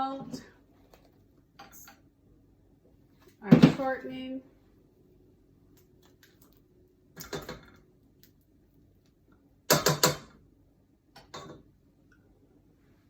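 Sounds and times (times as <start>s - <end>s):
utensils and dishes knocking: 9.7s - 10.3s.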